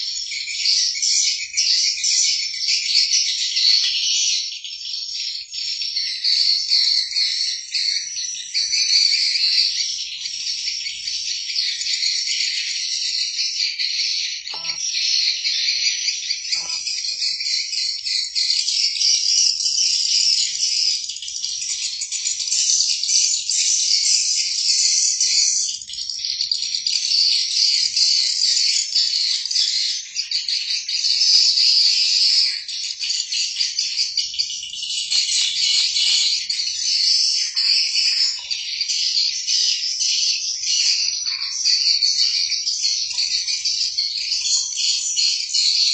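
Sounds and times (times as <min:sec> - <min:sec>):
high-pitched chirping and trilling: 0:03.3 - 0:19.0, 0:33.8 - 0:45.9.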